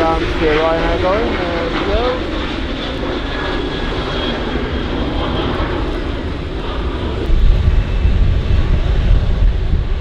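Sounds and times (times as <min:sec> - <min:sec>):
jet engines roaring: 0:00.0 - 0:10.0
ragged low rumble: 0:05.6 - 0:10.0.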